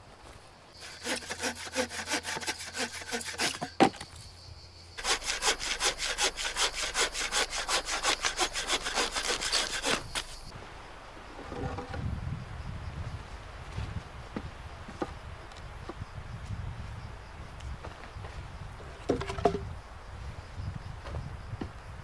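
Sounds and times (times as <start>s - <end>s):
hand saw cutting wood: 0.8s - 4.0s, 5.0s - 10.5s.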